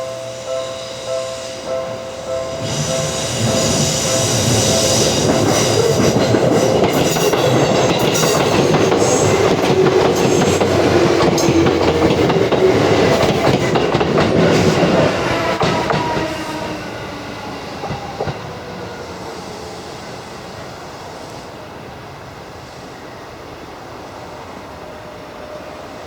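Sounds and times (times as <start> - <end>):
electric train running: 0.0 - 20.2
wheels clicking over rail joints: 4.4 - 16.3.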